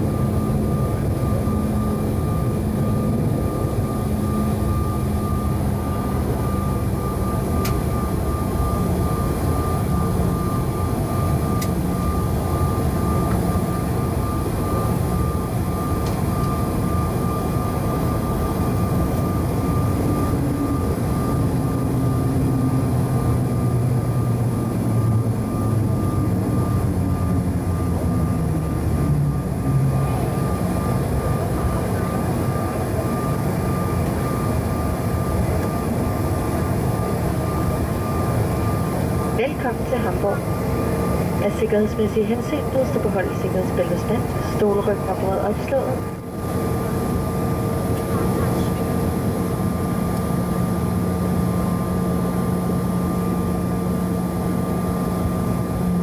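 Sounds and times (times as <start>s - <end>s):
jet engine drone: 0.0s - 56.0s
thin steady whine: 0.0s - 56.0s.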